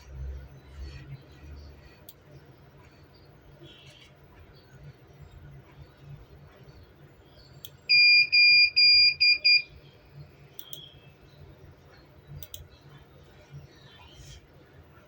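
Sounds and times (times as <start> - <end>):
electronic buzzer beeping: 7.9 - 9.7
sharp clicks: 10.5 - 10.9, 12.3 - 12.8.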